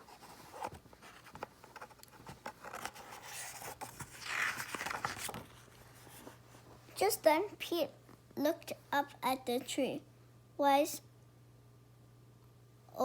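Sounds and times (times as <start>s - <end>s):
paper page rustling and turning: 0.0s - 6.7s.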